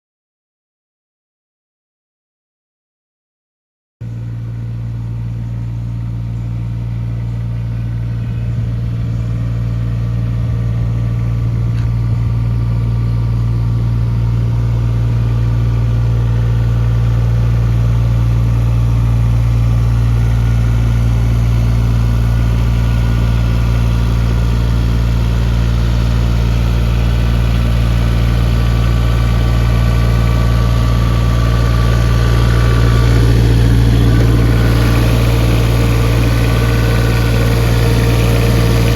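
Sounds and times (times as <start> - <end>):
excavator diesel engine running: 4.0 - 38.9.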